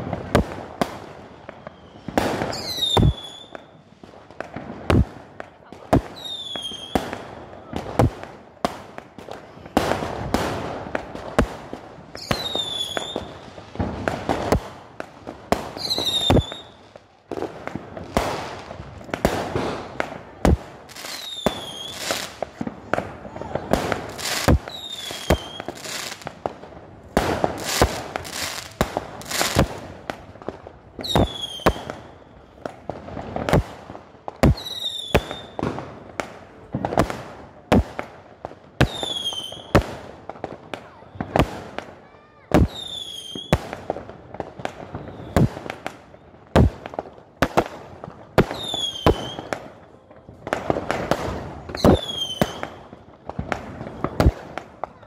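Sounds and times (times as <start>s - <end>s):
fireworks bangs: 0.0s - 55.0s
falling firework whistle: 1.2s - 3.9s, 12.2s - 13.4s, 15.8s - 16.8s, 23.3s - 26.2s, 34.4s - 35.6s, 44.8s - 46.8s.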